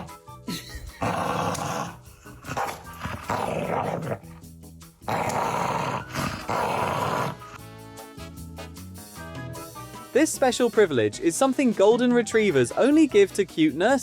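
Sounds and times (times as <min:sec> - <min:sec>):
background music: 0:00.0 - 0:14.0
dog growling: 0:00.8 - 0:07.6.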